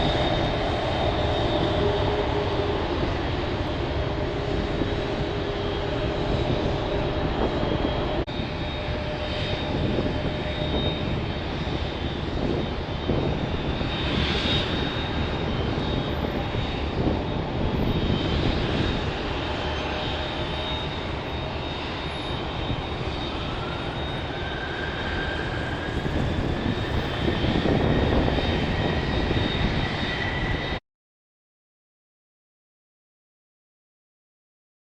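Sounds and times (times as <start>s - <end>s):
high jet whine: 0.0s - 30.8s
jet engines rumbling: 0.0s - 30.8s.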